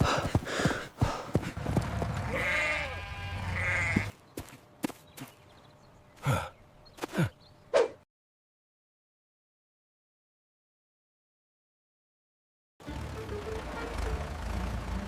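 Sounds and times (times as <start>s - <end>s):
sheep bleating: 2.2s - 4.1s.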